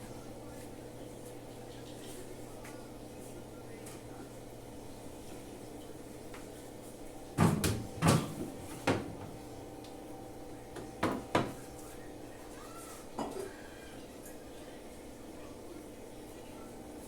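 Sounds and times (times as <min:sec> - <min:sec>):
refrigerator doors and shelves knocking: 0:07.4 - 0:09.4, 0:11.0 - 0:11.6.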